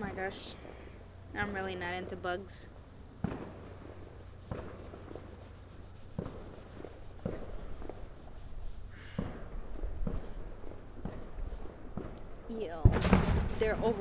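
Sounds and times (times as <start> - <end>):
distant fireworks bursting: 3.1 - 5.4, 6.1 - 8.0, 9.0 - 14.0.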